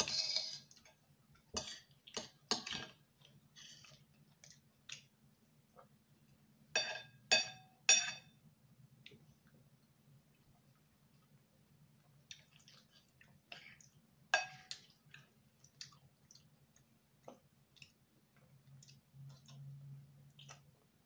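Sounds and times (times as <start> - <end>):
chewing and eating sounds: 9.0 - 20.9.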